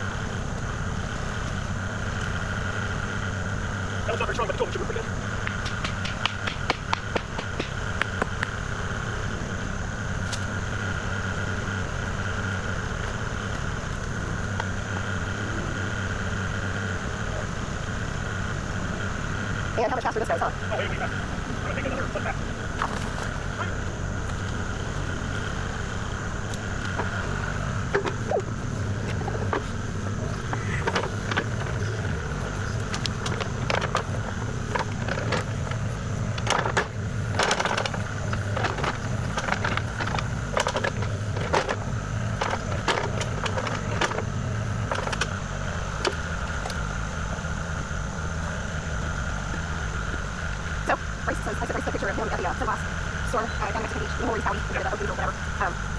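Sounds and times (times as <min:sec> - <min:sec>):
excavator diesel engine running: 0:00.0 - 0:55.9
hydraulic whine: 0:00.0 - 0:55.9
machine knocking and scraping ground: 0:05.4 - 0:08.5, 0:27.9 - 0:45.4.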